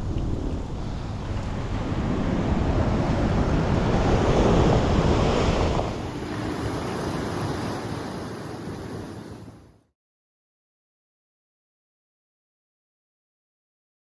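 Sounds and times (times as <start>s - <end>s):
wind buffeting microphone: 0.0s - 9.5s
surf breaking on beach: 0.0s - 9.8s.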